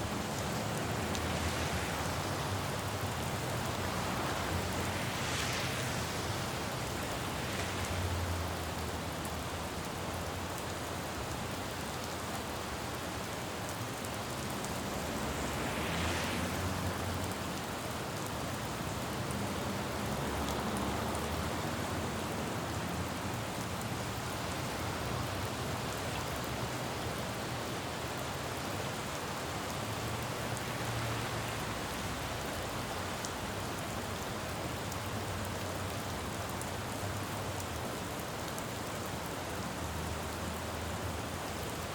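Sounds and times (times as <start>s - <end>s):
passing vehicle hiss: 0.0s - 10.5s, 12.7s - 34.2s
traffic rumbling: 0.0s - 27.4s
rain falling on a road: 0.0s - 41.9s.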